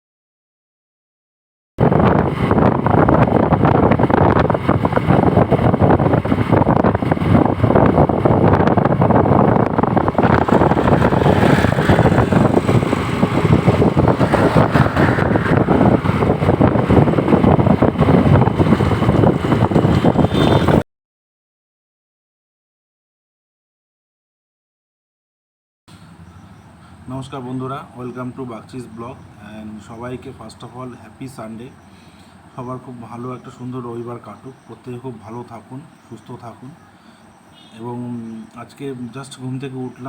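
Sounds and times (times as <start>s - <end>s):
wind buffeting microphone: 1.8s - 20.8s.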